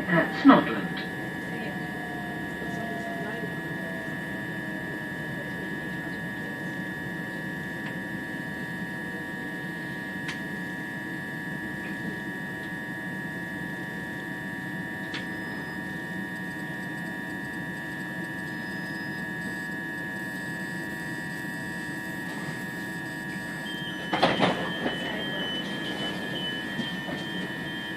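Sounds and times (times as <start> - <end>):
train running rumble: 0.0 - 8.6, 22.2 - 27.9
high train whine: 0.0 - 27.9
repeating beeps: 23.7 - 27.9
train doors clattering open: 23.7 - 27.9.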